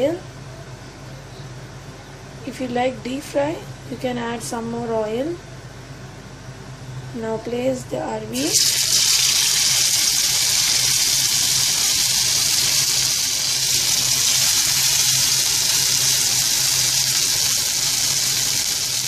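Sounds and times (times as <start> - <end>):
food sizzling in hot oil: 8.4 - 19.0.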